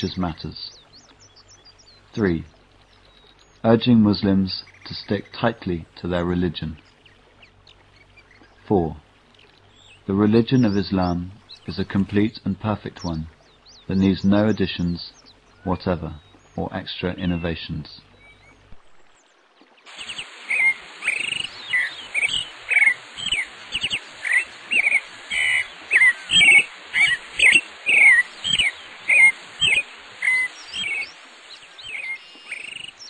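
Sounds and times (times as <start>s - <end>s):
bird chirping: 0.0s - 18.8s, 19.9s - 33.0s
insects trilling: 19.9s - 33.0s.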